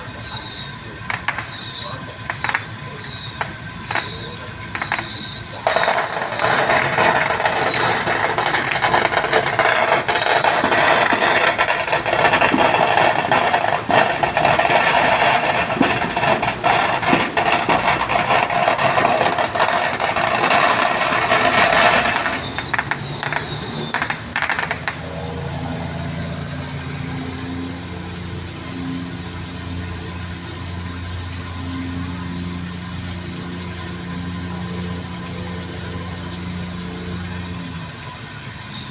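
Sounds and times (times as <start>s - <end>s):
boat engine humming: 0.0s - 38.9s
rattling mechanical clatter: 1.0s - 25.6s.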